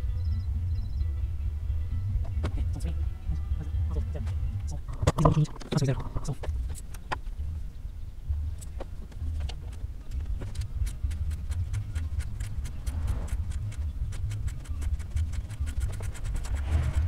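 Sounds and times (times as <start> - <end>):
low rumble: 6.0 - 17.0.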